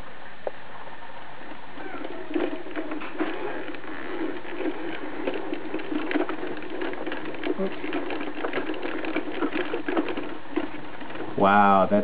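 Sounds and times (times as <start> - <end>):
toy truck gears clicking and rattling: 2.0 - 11.5.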